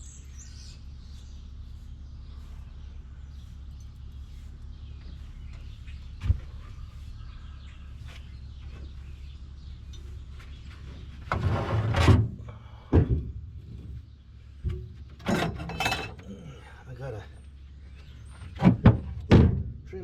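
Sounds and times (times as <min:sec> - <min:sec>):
low hum: 0:00.0 - 0:19.8.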